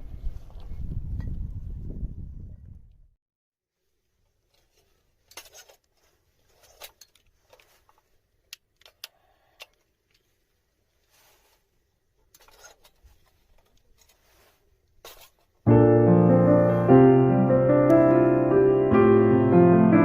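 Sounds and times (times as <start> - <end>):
small clicks and rustles: 4.2 - 15.6.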